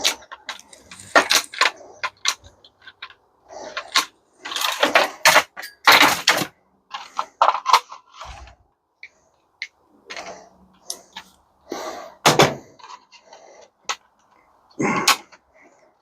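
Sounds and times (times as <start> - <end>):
metal parts clinking and clattering: 0.0 - 8.5.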